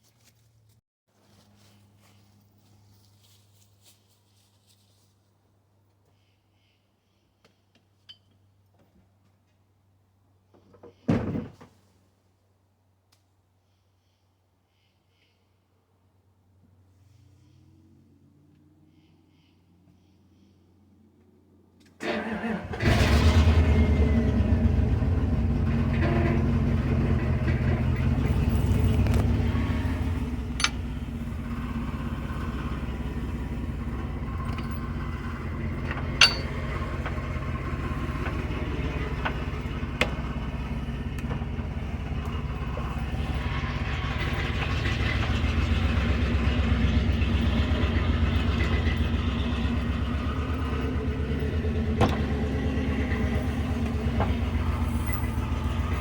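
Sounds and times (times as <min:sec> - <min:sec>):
truck engine running: 0:22.0 - 0:56.0.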